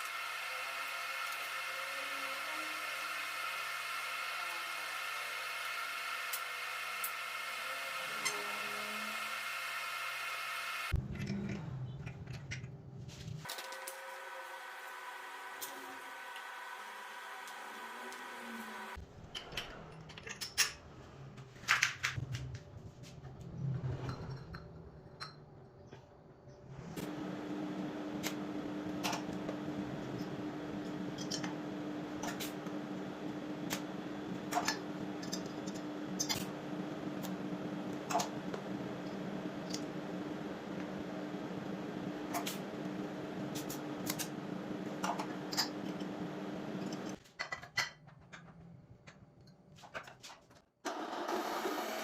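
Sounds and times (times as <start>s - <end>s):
machine humming: 0.0s - 12.0s, 13.5s - 19.0s, 26.7s - 47.2s.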